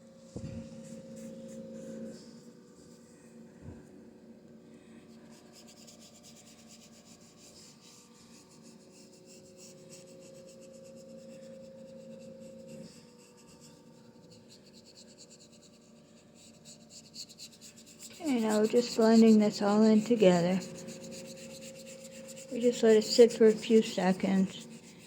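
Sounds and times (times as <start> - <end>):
faint steady hum: 0.0 - 25.0
paintbrush scrubbing on canvas: 14.3 - 25.0.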